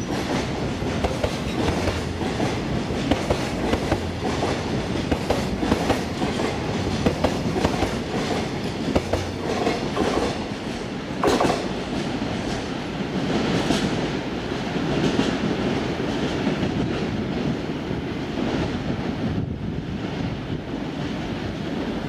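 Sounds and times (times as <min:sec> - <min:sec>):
wheels clacking over rail joints: 0:00.0 - 0:12.7
train rumble: 0:00.0 - 0:22.0.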